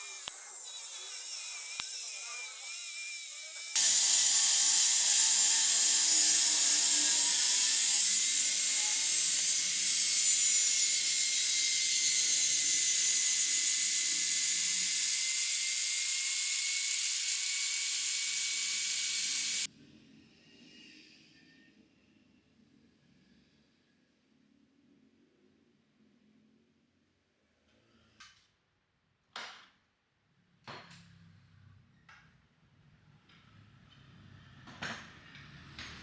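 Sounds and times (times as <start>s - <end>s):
angle grinder cutting metal: 0.0s - 19.7s.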